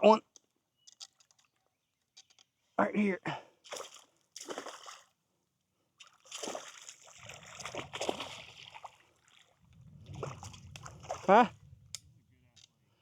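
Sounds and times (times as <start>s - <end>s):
water splashing and sloshing: 3.6s - 5.2s, 6.0s - 13.0s.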